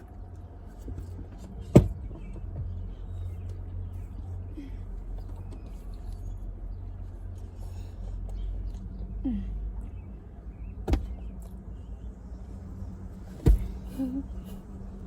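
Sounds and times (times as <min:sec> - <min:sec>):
low rumble inside a car: 0:00.0 - 0:15.0.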